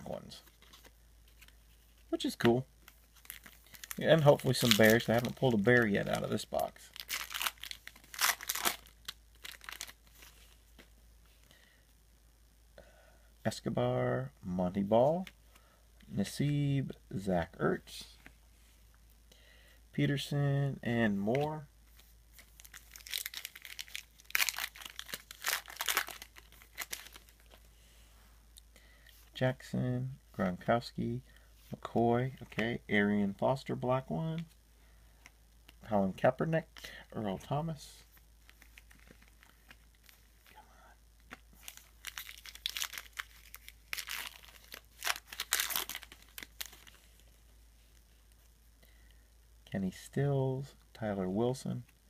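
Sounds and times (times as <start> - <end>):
card wrapper crinkling: 0.2 - 10.9, 21.3 - 27.7, 38.1 - 40.6, 41.2 - 47.3.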